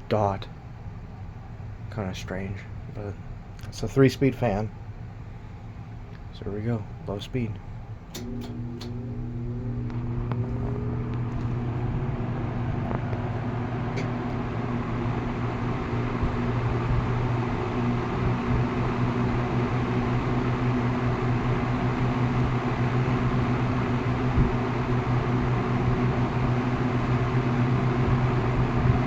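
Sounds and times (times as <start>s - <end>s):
box fan motor humming: 7.7s - 29.0s
fan blade tone rising: 8.2s - 29.0s.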